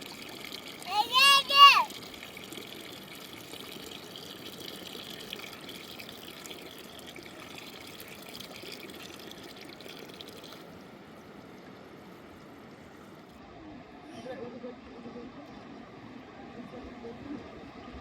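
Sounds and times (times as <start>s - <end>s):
water trickling and splashing: 0.0s - 13.4s.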